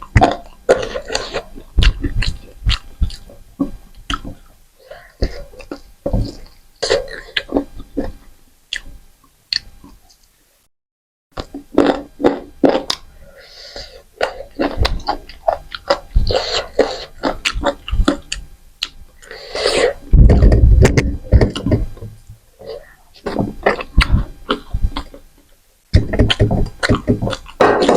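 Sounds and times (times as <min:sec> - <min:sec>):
chewing and lip smacking: 0:00.1 - 0:04.5.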